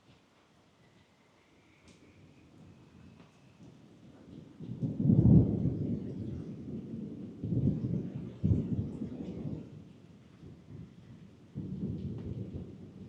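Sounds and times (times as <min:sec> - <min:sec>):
steady rain: 0:00.0 - 0:13.0
thunder rumbling: 0:04.3 - 0:13.0.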